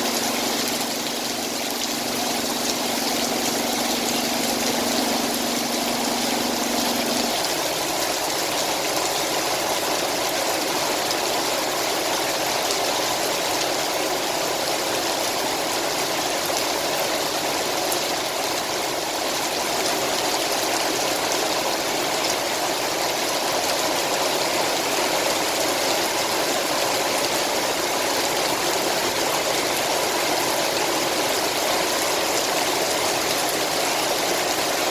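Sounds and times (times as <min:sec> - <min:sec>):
low steady hum: 0:00.0 - 0:07.5
heavy rain falling: 0:00.0 - 0:34.9.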